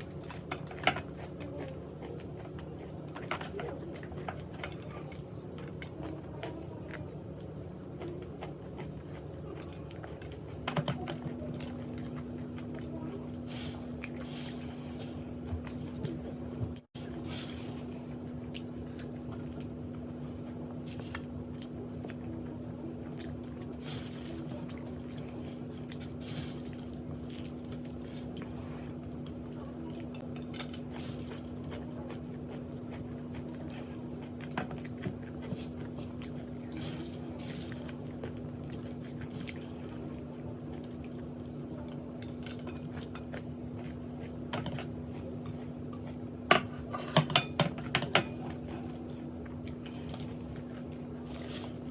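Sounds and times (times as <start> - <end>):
low electrical hum: 0.0 - 51.9
person chewing food: 0.0 - 51.9.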